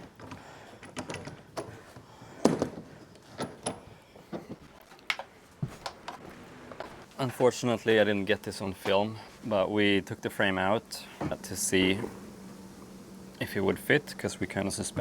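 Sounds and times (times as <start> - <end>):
tools and wood knocking: 0.0 - 1.8, 2.4 - 6.2.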